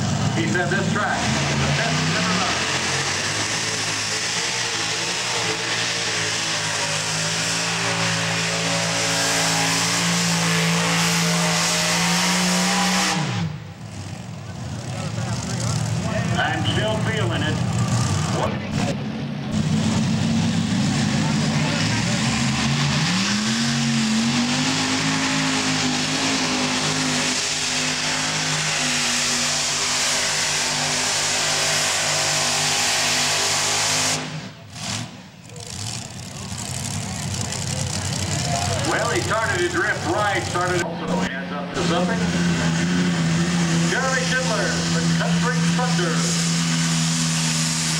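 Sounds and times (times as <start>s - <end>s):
tractor engine at full throttle: 0.0s - 47.9s
tractor engine running flat out: 33.2s - 40.9s.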